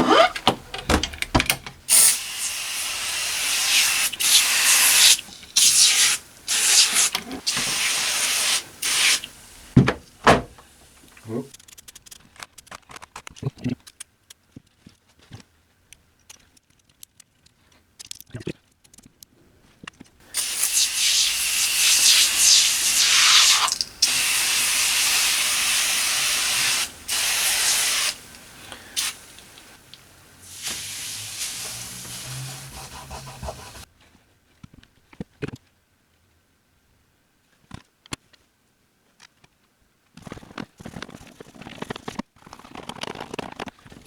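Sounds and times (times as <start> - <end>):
pressurised nozzle hissing: 1.9 - 11.5, 20.3 - 29.8, 30.4 - 33.8.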